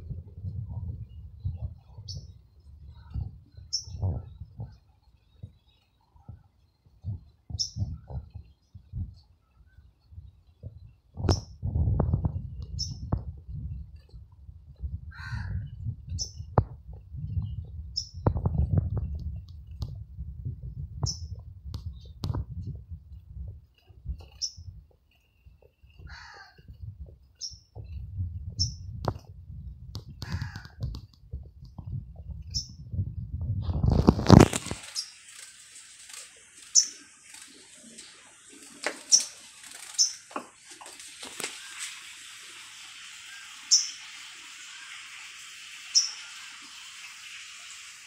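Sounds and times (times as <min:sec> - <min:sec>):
small bird chirping: 0:00.8 - 0:11.6, 0:12.5 - 0:13.2, 0:15.6 - 0:19.8, 0:21.0 - 0:22.2, 0:23.6 - 0:29.0, 0:32.4 - 0:32.8, 0:33.9 - 0:35.4, 0:36.6 - 0:37.4, 0:39.0 - 0:40.3, 0:43.3 - 0:44.0, 0:45.9 - 0:46.4.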